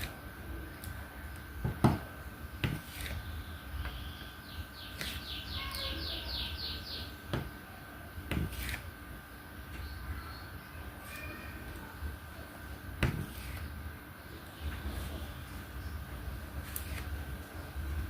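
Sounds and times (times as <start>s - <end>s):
faint steady hum: 0.0s - 18.0s
bird chirping: 3.3s - 7.2s.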